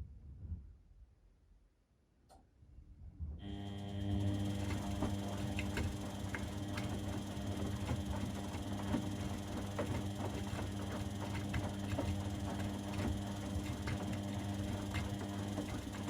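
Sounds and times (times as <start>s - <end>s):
washing machine motor hum: 3.4s - 16.0s.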